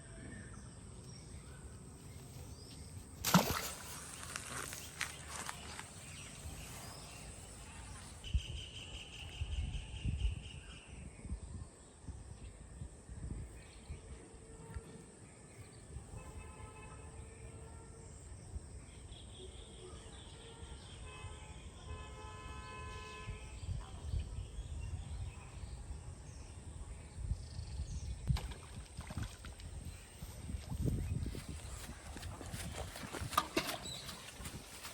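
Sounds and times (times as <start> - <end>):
wind rumble on microphone: 5.6 - 15.0, 23.0 - 34.9.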